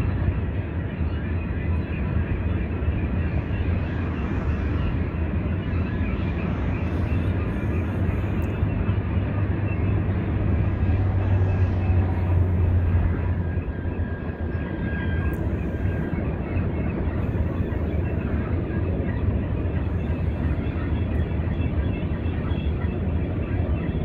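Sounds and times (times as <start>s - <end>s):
freight train rolling past: 4.8s - 24.0s.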